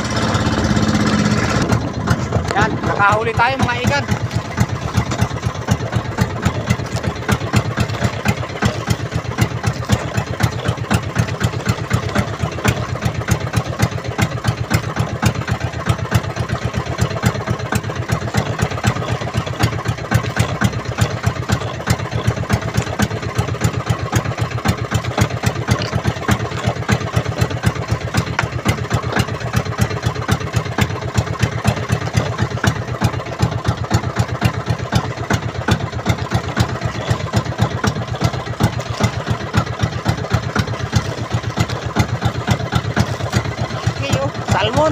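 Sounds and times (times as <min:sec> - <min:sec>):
boat engine chugging: 0:00.0 - 0:44.9.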